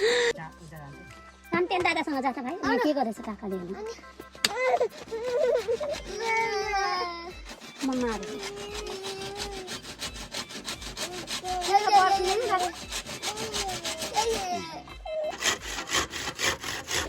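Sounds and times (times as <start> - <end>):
hand tool strokes on wood: 4.2 - 17.0.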